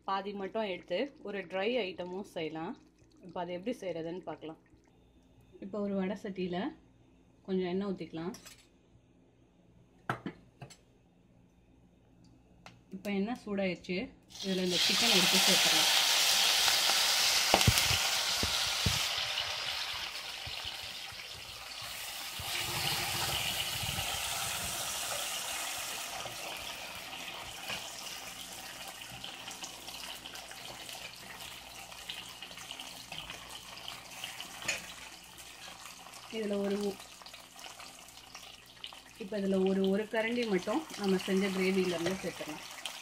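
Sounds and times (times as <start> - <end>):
chicken sizzling in hot oil: 14.3 - 43.0.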